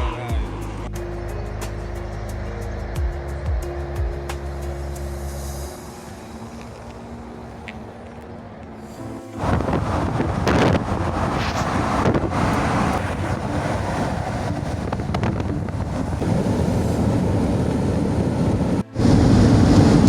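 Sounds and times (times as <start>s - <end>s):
wind buffeting microphone: 6.0s - 20.0s.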